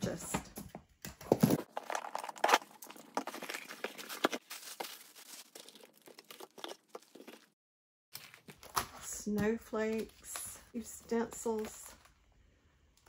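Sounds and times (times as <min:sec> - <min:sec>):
packaging crinkling and tearing: 0:01.5 - 0:07.6, 0:08.2 - 0:09.0.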